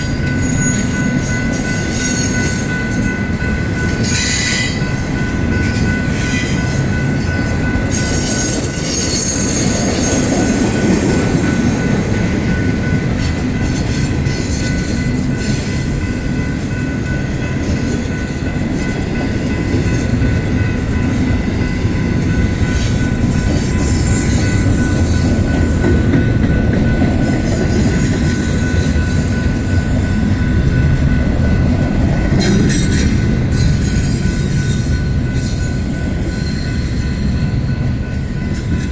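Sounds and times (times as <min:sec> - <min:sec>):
steel wheels rumbling on rail: 0:00.0 - 0:38.9.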